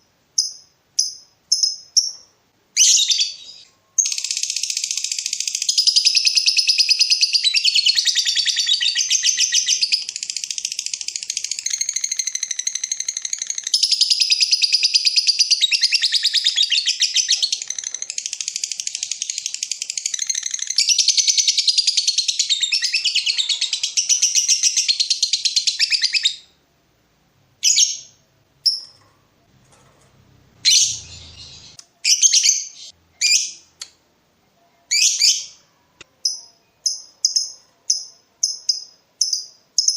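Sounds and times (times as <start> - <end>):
lovebird chattering trill: 30.6 - 33.6
short bird chirps: 30.6 - 33.7.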